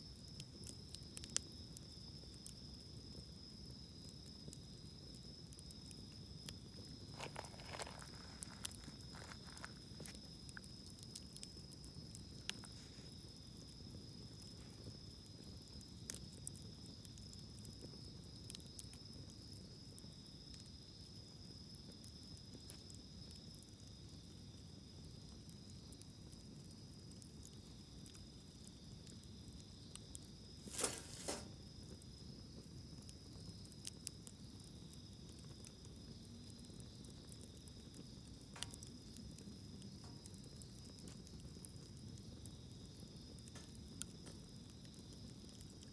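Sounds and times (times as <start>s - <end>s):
campfire crackling and popping: 0.0s - 45.9s
insects chirring: 0.0s - 45.9s.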